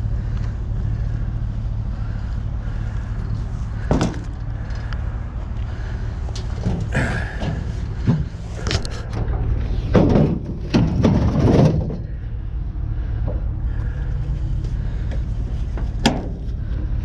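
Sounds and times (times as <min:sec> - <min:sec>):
vehicle engine running: 0:00.0 - 0:17.0
rattling clatter: 0:05.7 - 0:17.0.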